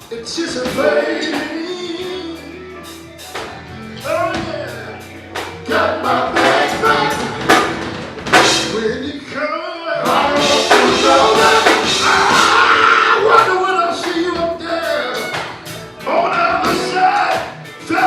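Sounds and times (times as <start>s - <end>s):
lead singer singing: 0.0s - 3.3s, 8.5s - 18.0s
backing voices: 0.0s - 18.0s
band playing: 0.0s - 18.0s.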